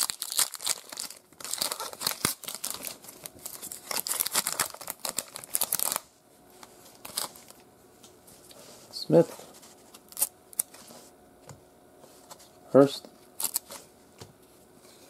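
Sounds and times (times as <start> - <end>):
wrapper tearing and crinkling: 0.0 - 6.0, 7.0 - 7.6, 10.1 - 10.7, 13.4 - 13.8.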